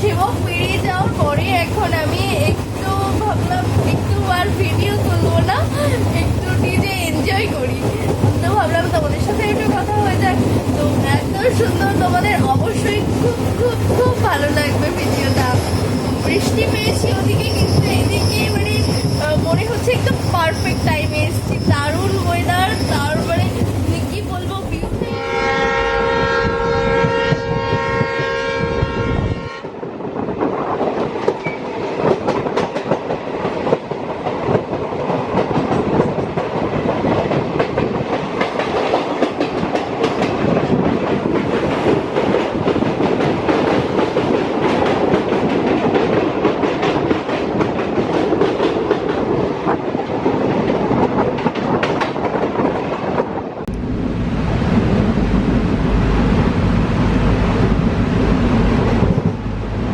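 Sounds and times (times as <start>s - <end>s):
train clickety-clack on rails: 0.0s - 59.9s
train horn chord: 25.0s - 29.8s.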